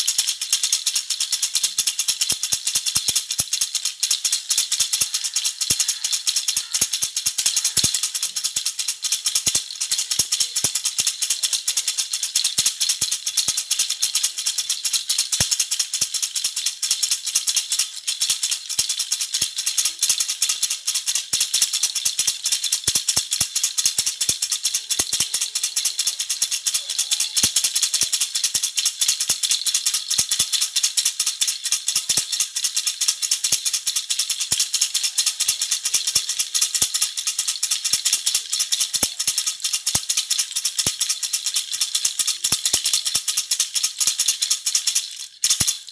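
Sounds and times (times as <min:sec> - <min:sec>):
baby rattle shaken: 0:00.0 - 0:45.9.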